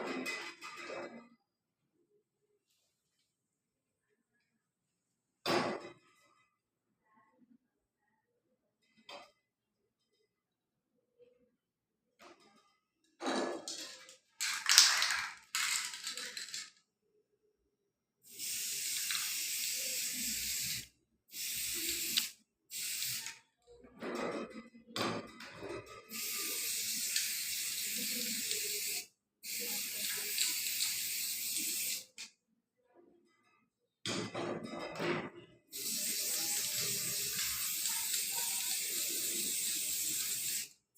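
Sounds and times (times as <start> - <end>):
aerosol spray can hissing: 18.3 - 23.3, 26.1 - 32.1, 35.7 - 40.7.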